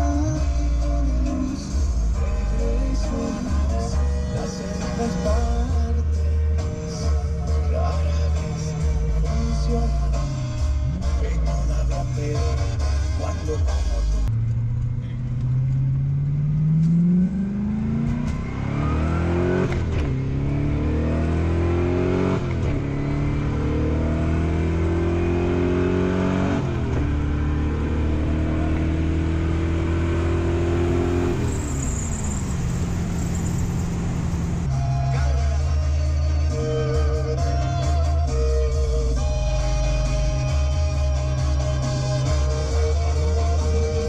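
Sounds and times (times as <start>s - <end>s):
car engine accelerating through gears: 0.0s - 34.8s.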